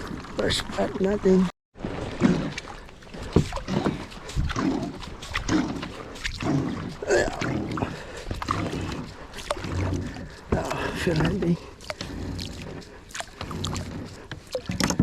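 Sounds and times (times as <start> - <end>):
water splashing and dripping: 0.0 - 15.0
knocks and clicks against kayak hull: 1.8 - 6.3, 8.3 - 15.0.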